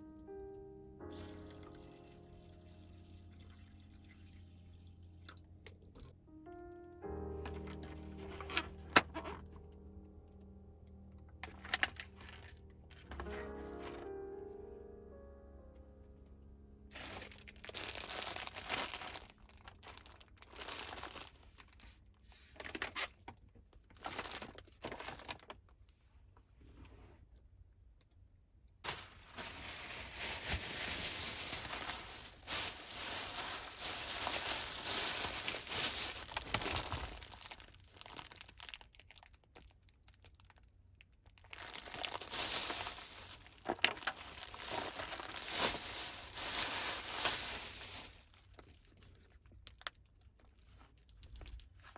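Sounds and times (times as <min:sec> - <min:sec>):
crinkling rustling handling noise: 0:07.3 - 0:09.8, 0:11.4 - 0:14.2, 0:16.9 - 0:26.0, 0:28.8 - 0:51.9.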